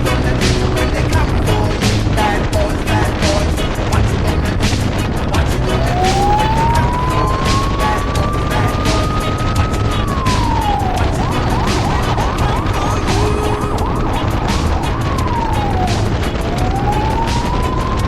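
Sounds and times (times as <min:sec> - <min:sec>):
electronic siren wailing and yelping: 0:05.4 - 0:18.0.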